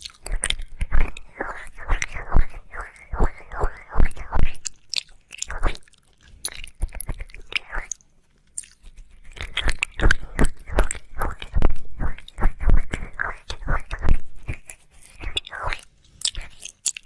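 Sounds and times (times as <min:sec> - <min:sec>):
wet mouth smacks and clicks: 0:00.0 - 0:17.0.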